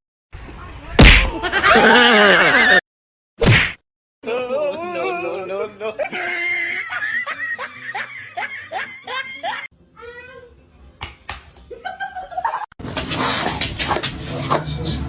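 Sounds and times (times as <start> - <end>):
person laughing: 1.3 - 2.8, 4.3 - 9.7.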